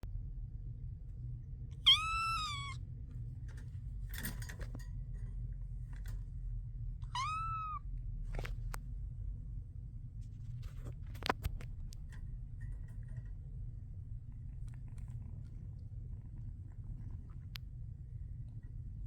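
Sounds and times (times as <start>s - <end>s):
kitten meowing: 1.8s - 2.8s, 7.0s - 7.8s.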